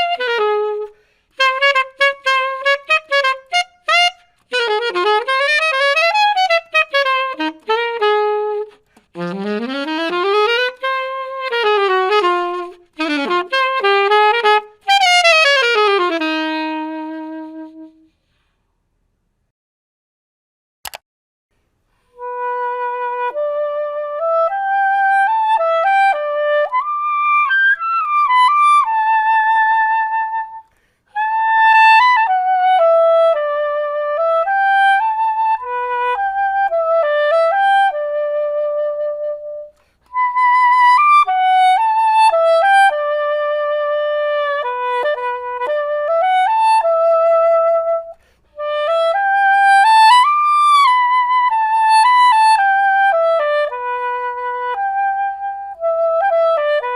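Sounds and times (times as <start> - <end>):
soprano saxophone melody: 0.0 - 18.3, 22.0 - 56.9
breaths: 0.9 - 1.4, 18.1 - 18.8, 30.6 - 31.1, 39.7 - 40.1, 48.1 - 48.6
brief click: 20.8 - 21.0.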